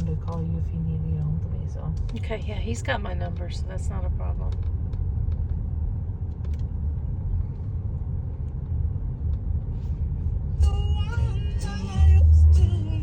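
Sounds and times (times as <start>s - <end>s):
car engine and road noise: 0.0s - 13.0s
song on car radio: 9.8s - 13.0s.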